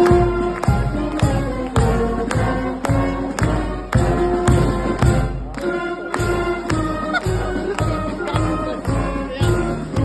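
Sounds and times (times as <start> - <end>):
bass drum beat: 0.0 - 5.5
wind band playing chords: 0.0 - 10.0.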